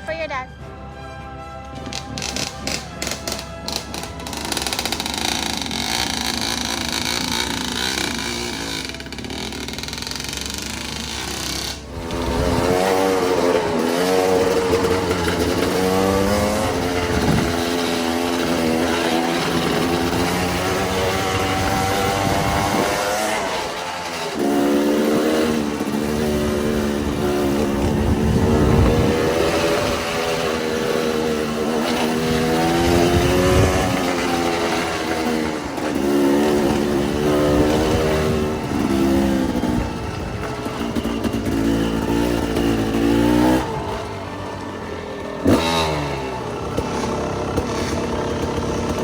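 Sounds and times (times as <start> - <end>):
dirt bike engine revving: 1.8 - 49.0
steady rushing noise: 10.6 - 44.2.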